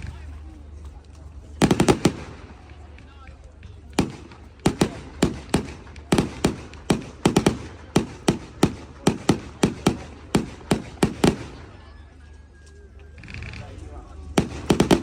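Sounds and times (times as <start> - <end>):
fireworks bangs: 1.6 - 3.1, 3.8 - 11.8, 14.3 - 15.0.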